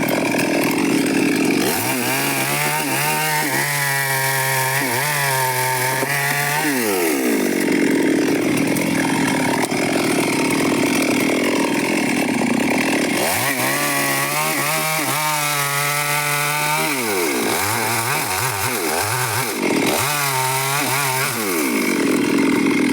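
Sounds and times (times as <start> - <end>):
chainsaw cutting wood: 0.0 - 22.9
chainsaw revving: 0.0 - 22.9.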